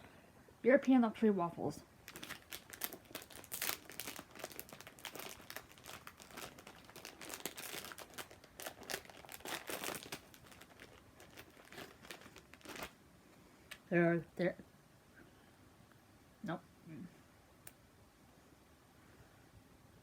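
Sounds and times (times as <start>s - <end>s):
plastic wrapper crinkling: 2.0s - 13.0s.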